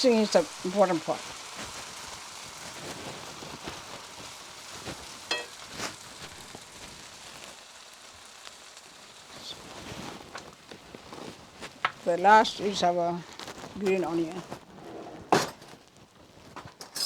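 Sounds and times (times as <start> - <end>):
noodles sizzling in a pan: 0.0 - 17.0
utensil clinking against pan: 5.3 - 5.6.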